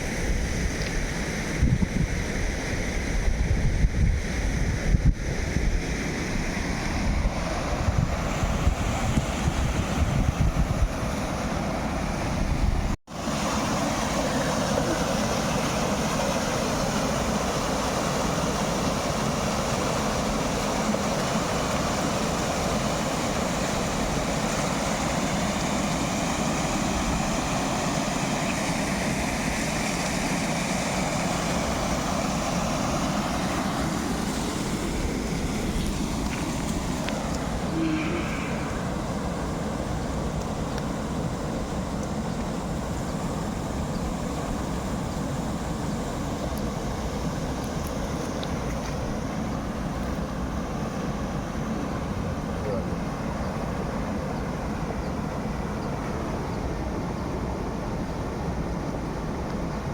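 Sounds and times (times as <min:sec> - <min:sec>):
rushing water: 0:00.0 - 0:59.9
wind buffeting microphone: 0:01.4 - 0:13.0.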